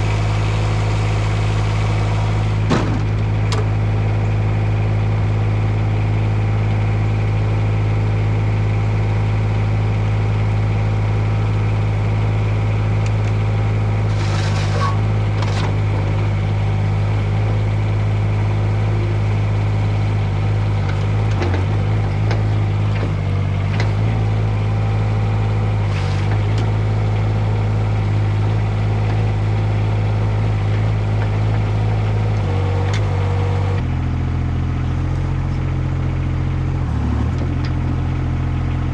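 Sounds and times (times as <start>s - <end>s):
diesel engine running: 0.0s - 38.9s
knocks and clanks: 2.7s - 3.7s.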